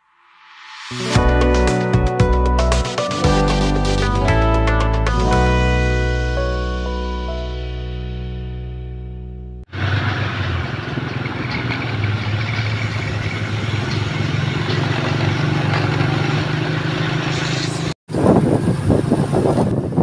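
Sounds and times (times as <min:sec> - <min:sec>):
combine harvester engine running: 0:09.7 - 0:20.0
wind on microphone: 0:18.1 - 0:20.0.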